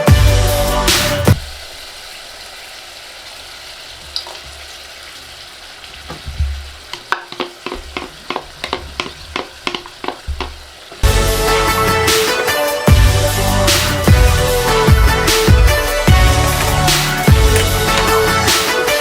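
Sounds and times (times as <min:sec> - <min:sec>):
sauce sizzling in a pan: 0:00.0 - 0:19.0
spoon scraping a pan: 0:05.9 - 0:14.1, 0:15.7 - 0:19.0.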